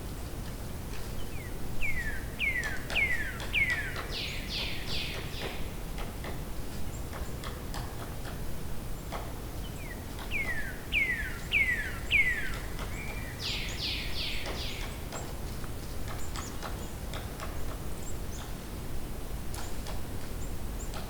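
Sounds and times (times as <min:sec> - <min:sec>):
low steady background hiss: 0:00.0 - 0:21.0
bird singing whistled notes: 0:10.4 - 0:14.9.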